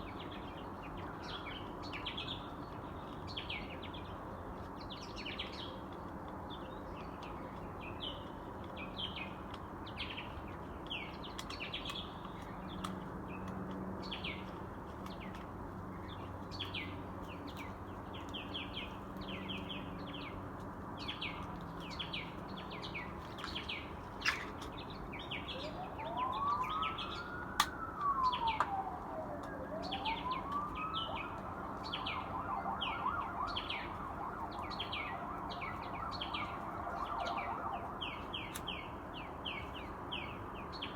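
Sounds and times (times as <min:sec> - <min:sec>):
birds chirping: 0:00.0 - 0:40.9
low city hum: 0:00.0 - 0:40.9
emergency vehicle siren: 0:25.2 - 0:39.1.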